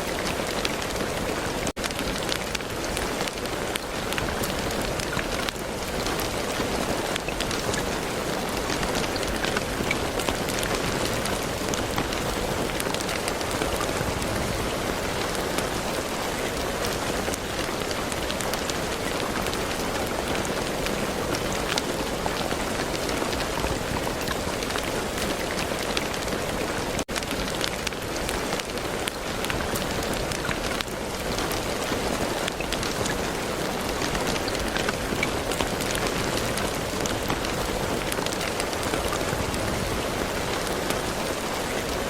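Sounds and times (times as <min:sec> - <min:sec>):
rain hissing with ticking drops: 0:00.0 - 0:42.0.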